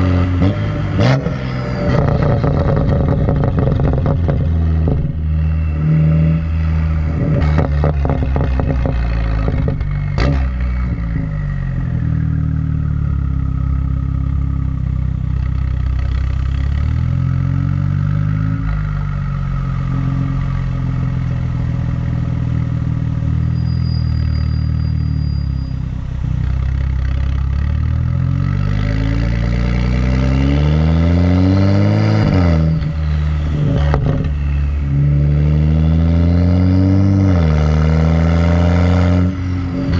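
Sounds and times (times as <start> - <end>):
car exhaust revving: 0.0 - 39.9
exhaust crackles and pops: 1.9 - 5.2, 7.2 - 10.8.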